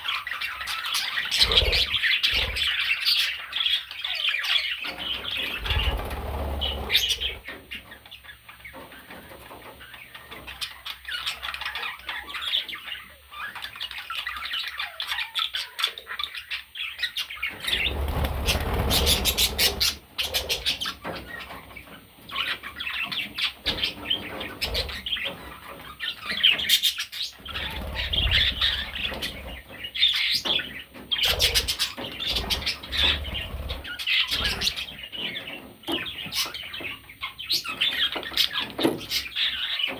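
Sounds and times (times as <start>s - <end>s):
budgerigar chirping: 0.1s - 8.4s, 9.9s - 21.6s
wing flapping: 1.4s - 2.7s, 5.4s - 7.6s, 17.6s - 20.9s.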